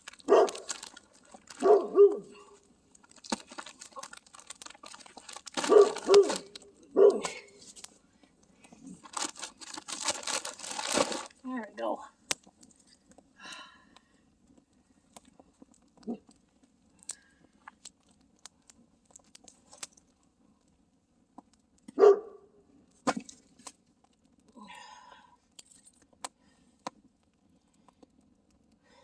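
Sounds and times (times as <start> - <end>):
campfire crackling and popping: 0.0 - 11.5, 12.2 - 22.0, 22.9 - 24.6, 25.4 - 29.0
faint steady hiss: 6.4 - 29.0.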